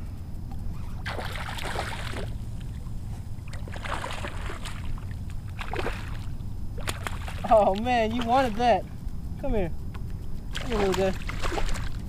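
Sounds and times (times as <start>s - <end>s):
steady low rumble: 0.0s - 12.0s
fish splashing in water: 1.0s - 7.9s, 10.5s - 12.0s.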